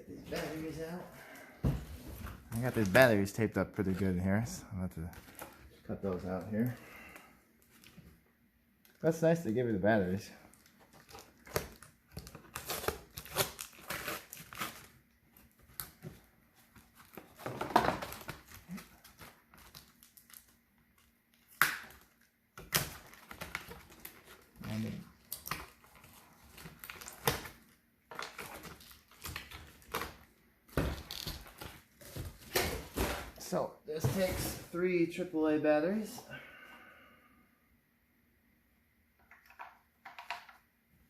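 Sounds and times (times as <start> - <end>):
tape clicks and crinkling: 10.4 - 33.2.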